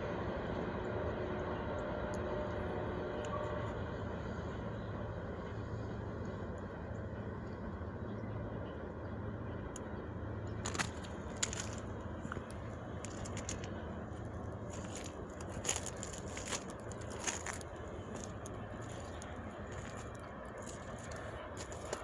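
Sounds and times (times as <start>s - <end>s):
sharp clicks and crackles: 10.6s - 13.8s.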